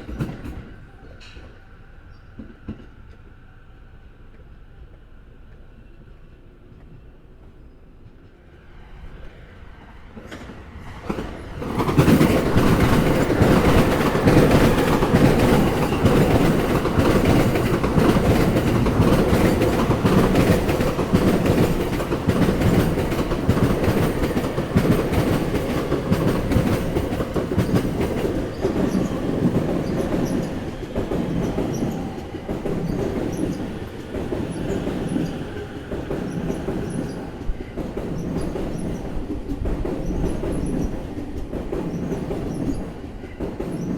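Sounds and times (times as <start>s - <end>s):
train wheels clattering on rail joints: 0.0s - 3.3s, 10.1s - 43.9s.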